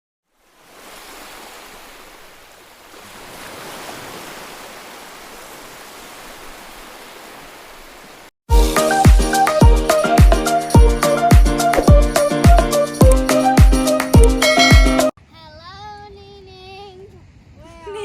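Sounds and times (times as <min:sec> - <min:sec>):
ocean surf rushing: 0:00.5 - 0:07.7
loud music with thumping beat: 0:08.5 - 0:15.1.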